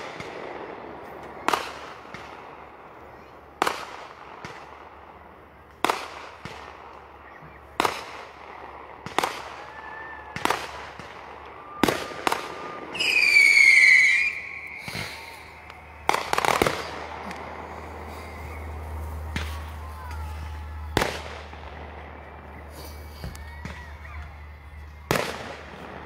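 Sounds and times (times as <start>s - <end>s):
fireworks exploding: 0.0s - 26.0s
rapid firework crackling: 0.0s - 26.0s
firework high whistle: 9.1s - 26.0s.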